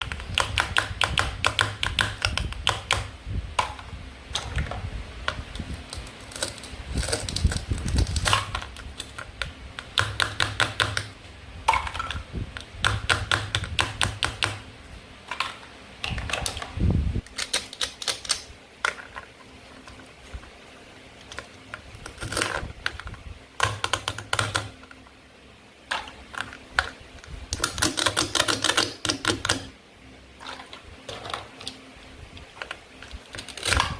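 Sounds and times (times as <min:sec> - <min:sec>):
plastic toy pieces clicking: 0:17.3 - 0:19.2, 0:27.5 - 0:29.7.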